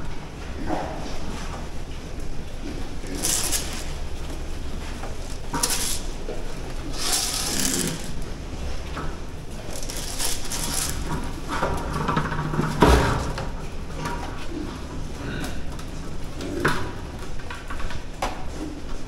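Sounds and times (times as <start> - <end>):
pigs grunting and squealing: 6.9 - 8.5.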